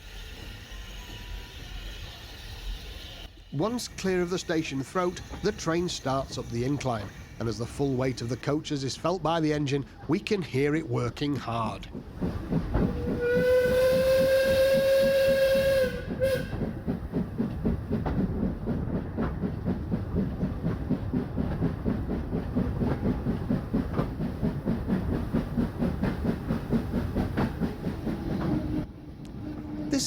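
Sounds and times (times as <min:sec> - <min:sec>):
steam locomotive exhaust beating: 0:11.8 - 0:30.0
steam locomotive whistle: 0:12.9 - 0:16.6.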